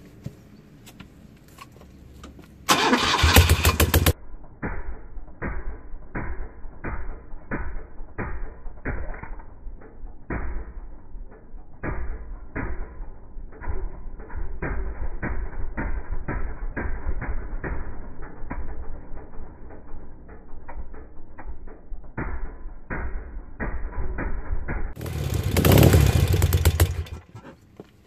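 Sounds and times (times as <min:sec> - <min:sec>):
engine slow even pulsing: 0:02.7 - 0:27.6
motorcycle engine starting: 0:02.7 - 0:27.6.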